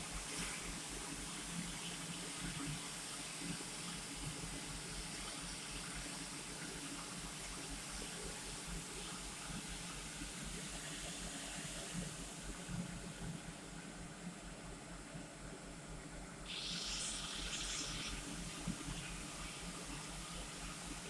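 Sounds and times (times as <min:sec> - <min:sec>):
welding arc hissing: 0:16.5 - 0:18.1.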